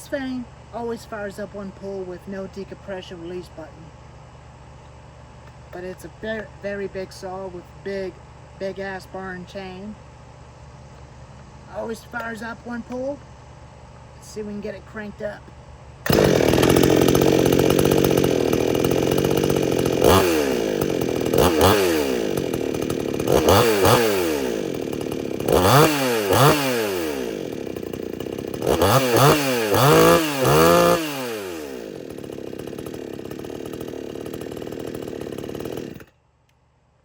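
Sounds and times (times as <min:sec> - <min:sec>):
chainsaw revving and idling: 0:05.5 - 0:10.1, 0:16.0 - 0:36.2.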